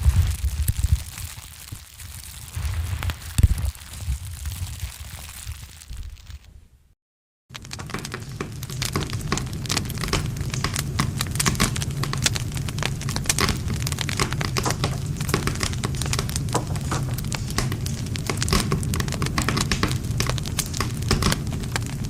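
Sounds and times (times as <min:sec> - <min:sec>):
campfire crackling: 0:00.0 - 0:06.6, 0:07.5 - 0:22.0.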